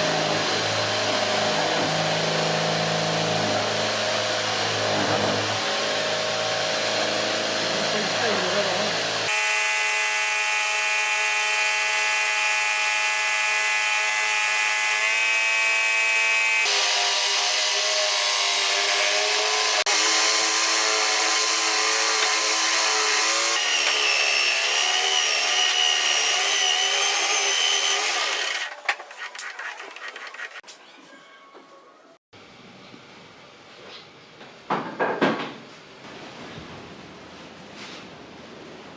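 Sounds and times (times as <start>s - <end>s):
lathe motor whining: 16.6s - 30.6s.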